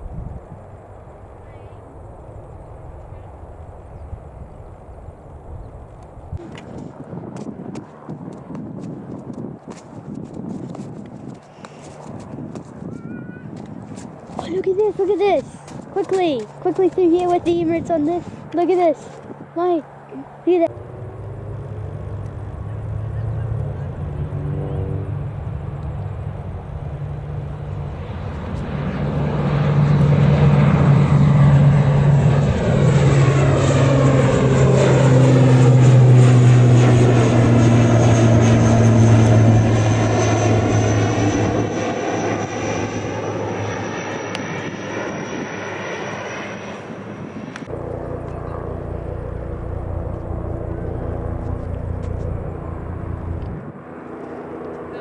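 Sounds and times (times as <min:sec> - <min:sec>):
aircraft flying low past: 0:00.0 - 0:55.0
high whine: 0:20.5 - 0:46.6, 0:47.5 - 0:53.6.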